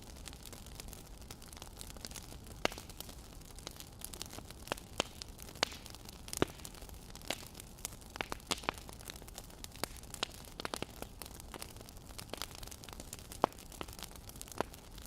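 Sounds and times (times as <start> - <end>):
low fire hiss: 0.0 - 15.0
wood fire pops and snaps: 0.0 - 15.0.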